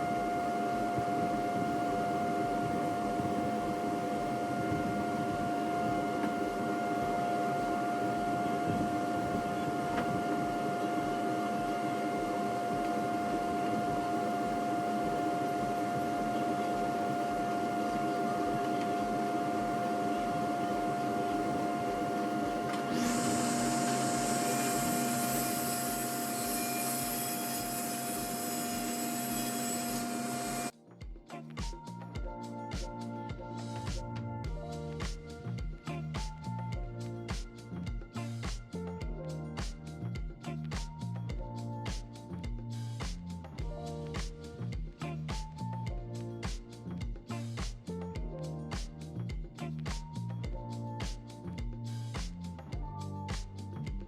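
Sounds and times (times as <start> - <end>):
electric motor whining: 0.0 - 30.7.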